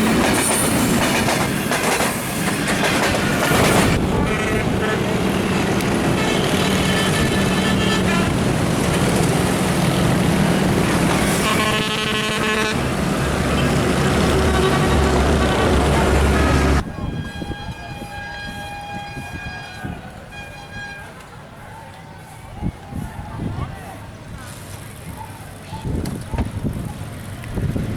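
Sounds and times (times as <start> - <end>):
train passing close by: 0.0 - 22.4
train horn blast: 4.0 - 8.6, 10.9 - 21.2.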